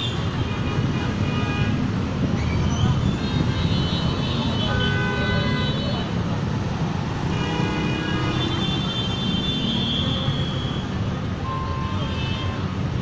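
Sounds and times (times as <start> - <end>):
traffic engine rumble: 0.0 - 13.0.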